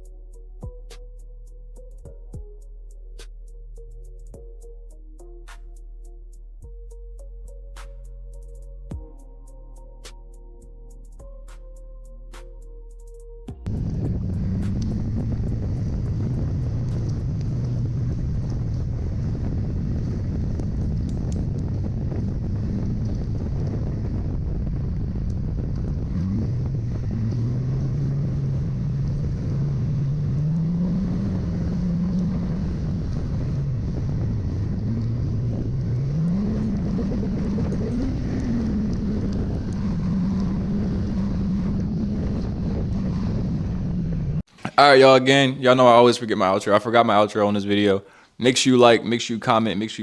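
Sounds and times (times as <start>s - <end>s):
wind rush on microphone: 13.6s - 44.5s
motorcycle engine: 13.7s - 44.5s.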